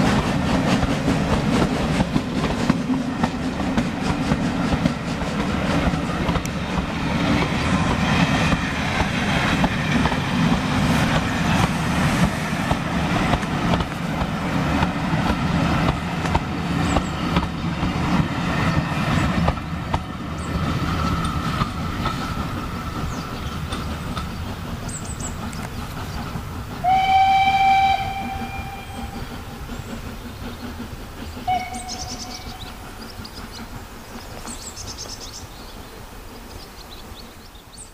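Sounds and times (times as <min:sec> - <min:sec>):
train wheels clattering over rails: 0:00.0 - 0:37.9
steam locomotive whistle: 0:26.8 - 0:29.7, 0:31.4 - 0:32.8.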